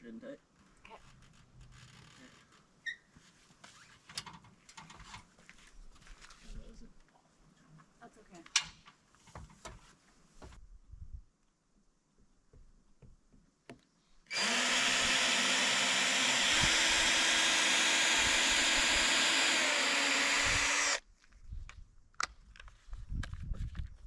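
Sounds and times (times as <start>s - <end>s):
power drill running: 14.3s - 21.0s.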